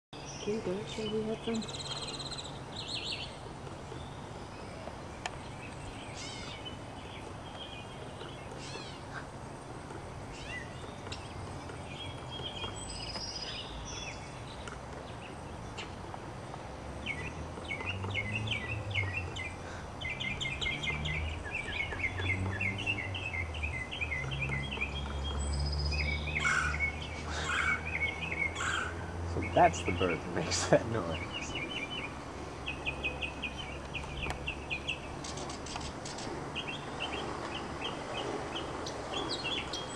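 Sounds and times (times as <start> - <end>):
birdsong: 0.2 - 39.9
woodpecker calling: 0.2 - 39.9.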